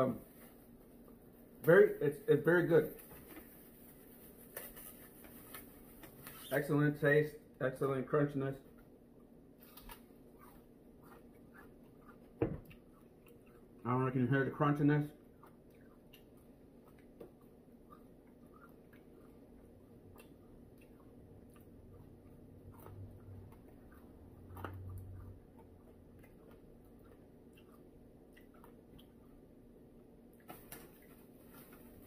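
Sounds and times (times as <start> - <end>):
chewing crispy fried chicken: 8.6 - 32.0.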